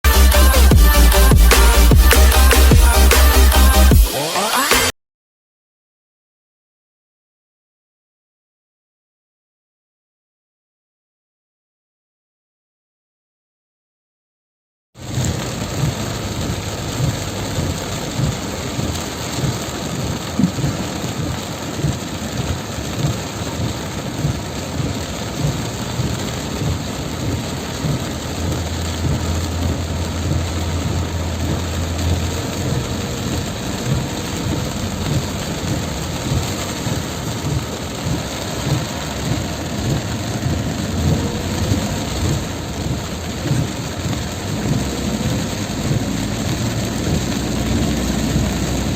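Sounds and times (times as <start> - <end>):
heavy rain pouring: 0.0 - 4.9, 15.0 - 48.9.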